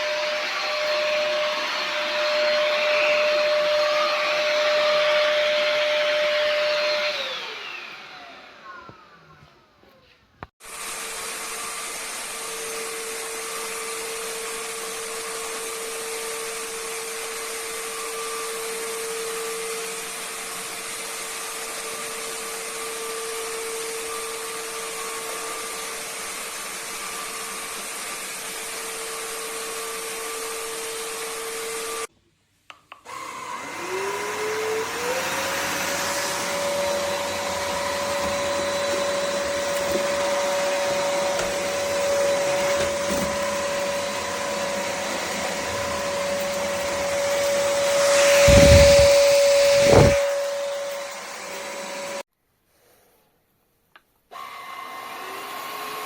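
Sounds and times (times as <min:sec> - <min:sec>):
stick vacuum motor whine: 0:00.0 - 0:09.4, 0:33.0 - 0:52.2
airflow noise: 0:43.1 - 0:51.9.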